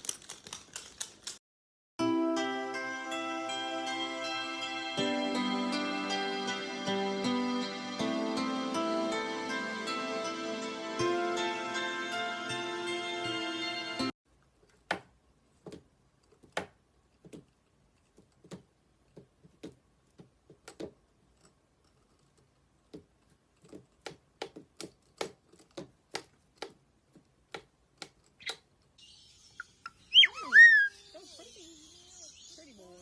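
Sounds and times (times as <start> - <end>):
loud bird whistle: 29.6 - 31.0.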